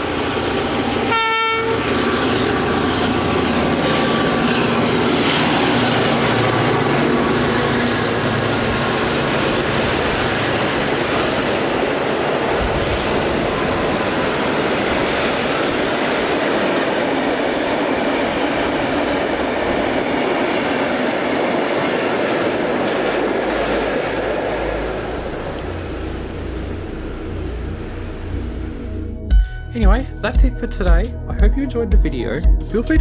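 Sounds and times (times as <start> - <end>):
train wheels rolling on rails: 0.0 - 28.9
diesel engine hum: 22.4 - 33.0.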